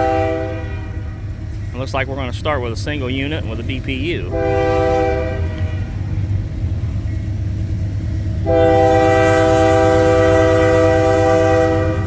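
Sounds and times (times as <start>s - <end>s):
locomotive chime air horn: 0.0s - 1.0s, 4.2s - 5.9s, 8.4s - 12.0s
train rumbling: 0.0s - 12.0s.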